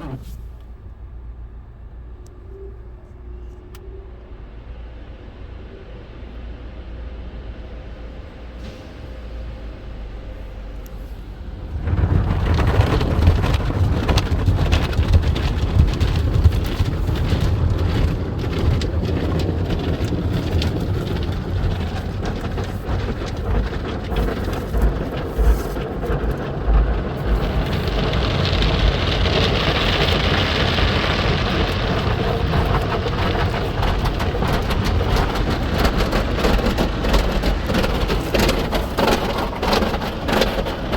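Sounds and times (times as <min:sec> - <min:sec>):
car wash water spraying: 0:00.0 - 0:01.1, 0:09.4 - 0:40.9.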